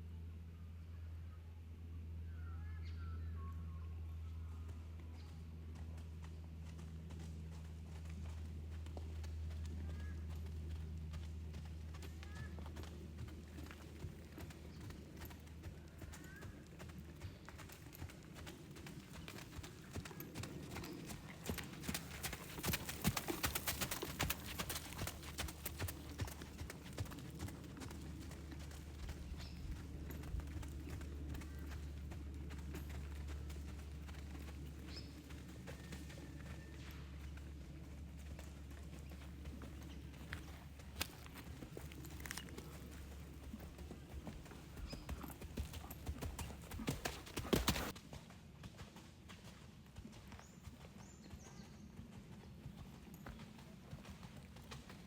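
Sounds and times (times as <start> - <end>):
horse hoofbeats: 4.2 - 55.0.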